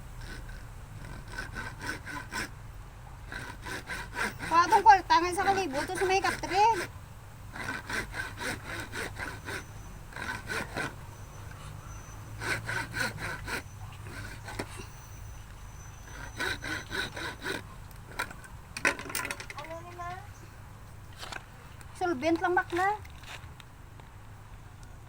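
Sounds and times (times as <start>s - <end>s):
hand saw cutting: 0.0s - 2.6s, 3.2s - 6.9s, 7.5s - 19.9s.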